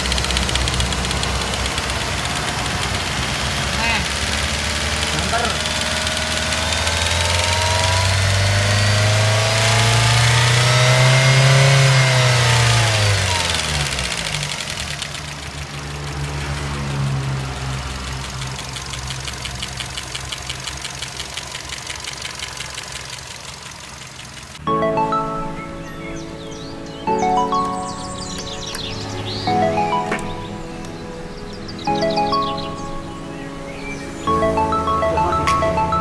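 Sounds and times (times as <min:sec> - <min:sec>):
engine revving: 0:00.0 - 0:24.6.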